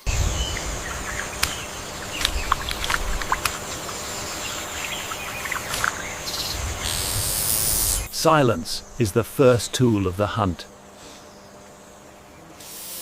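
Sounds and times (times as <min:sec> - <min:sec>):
low rumble: 0:00.0 - 0:09.9
high insect drone: 0:00.0 - 0:13.0.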